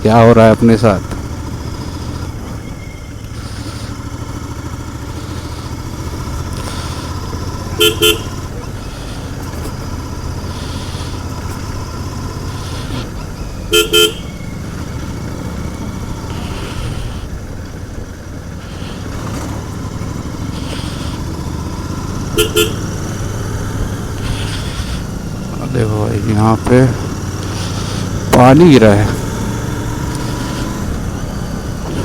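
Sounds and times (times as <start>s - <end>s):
motorcycle engine running: 0.0s - 32.0s
horn short toots: 6.6s - 9.3s, 13.7s - 14.4s, 22.1s - 24.6s.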